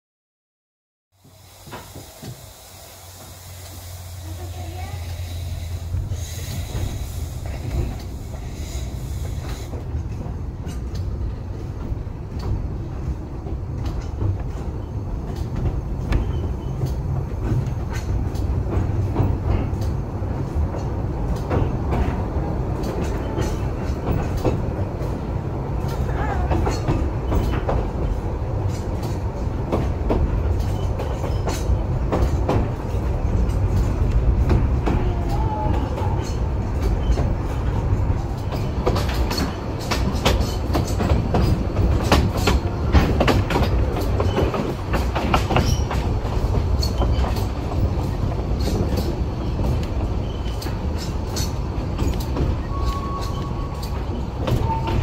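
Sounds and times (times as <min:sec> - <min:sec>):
train carriage rumble: 0:01.1 - 0:55.0
steam hissing: 0:01.2 - 0:10.2
wheels clicking over rail joints: 0:01.2 - 0:55.0.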